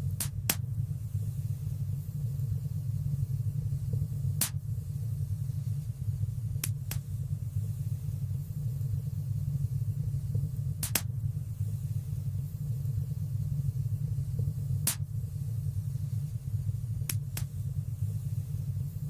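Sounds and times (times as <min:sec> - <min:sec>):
fire crackling pops: 0:00.0 - 0:01.0, 0:02.1 - 0:05.0, 0:05.8 - 0:07.4, 0:08.7 - 0:11.7, 0:12.6 - 0:15.4, 0:16.9 - 0:18.2
fire burning with low rumble: 0:00.0 - 0:19.0.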